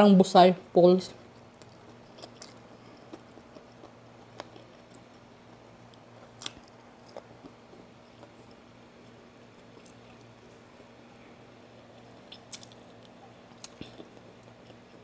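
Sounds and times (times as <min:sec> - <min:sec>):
faint low hum: 0:00.0 - 0:15.0
person chewing food: 0:01.3 - 0:10.8, 0:11.8 - 0:15.0
wet mouth clicks and smacks: 0:12.3 - 0:14.1.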